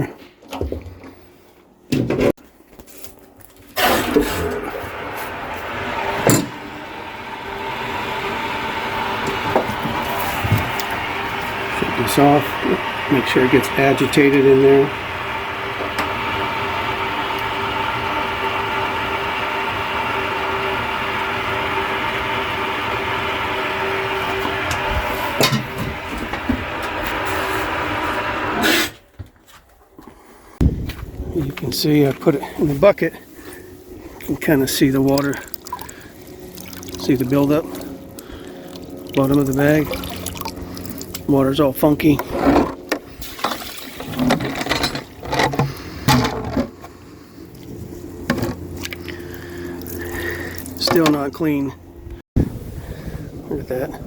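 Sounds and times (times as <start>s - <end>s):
water rushing through pipes: 3.8s - 28.6s, 34.1s - 46.3s
water rushing into tank: 34.3s - 41.4s, 43.2s - 45.9s.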